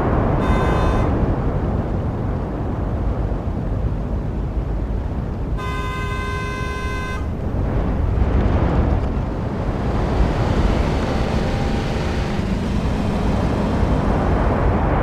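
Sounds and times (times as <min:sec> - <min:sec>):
passing vehicles rumbling: 0:00.0 - 0:15.0
car horn: 0:00.3 - 0:01.3, 0:05.6 - 0:08.2, 0:10.9 - 0:14.1.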